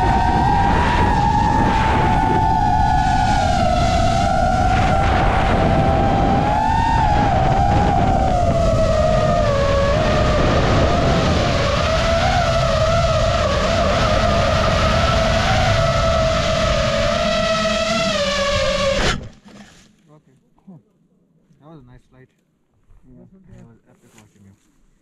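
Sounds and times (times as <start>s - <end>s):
wind rumble: 0.0s - 19.4s
drone motors whining: 0.0s - 19.6s.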